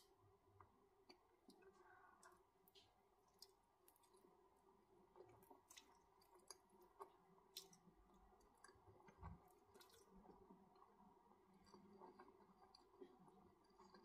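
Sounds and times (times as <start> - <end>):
wet chewing and smacking: 1.0 - 4.4, 5.1 - 10.4.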